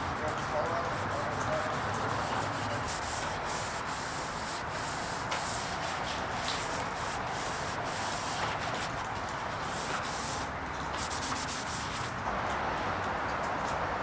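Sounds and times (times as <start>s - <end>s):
abrasive sanding hiss: 0.8s - 12.0s.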